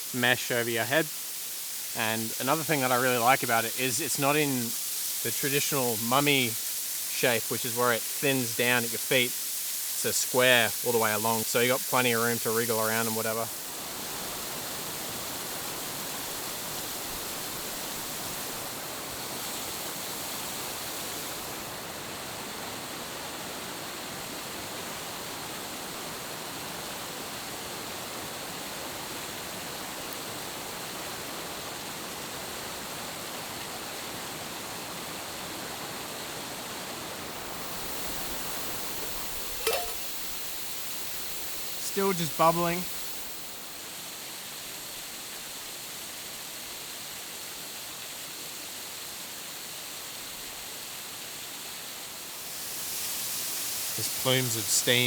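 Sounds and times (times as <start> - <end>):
waterfall rushing: 0.0 - 21.9, 37.0 - 45.0, 52.3 - 55.0.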